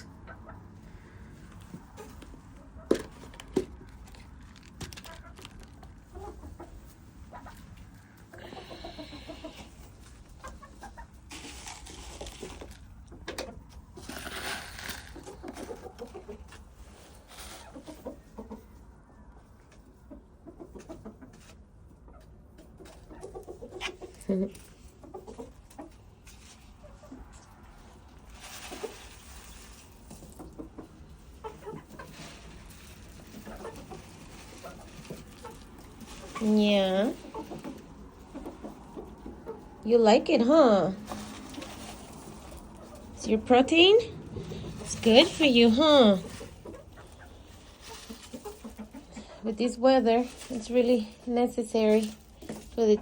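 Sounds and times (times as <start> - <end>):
hens clucking: 0.0 - 53.0
rustling noise: 9.1 - 18.1, 25.6 - 53.0.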